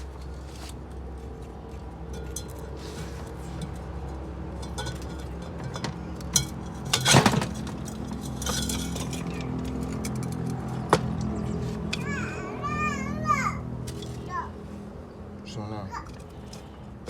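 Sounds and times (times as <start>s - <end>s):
metal parts clinking: 4.6s - 10.9s.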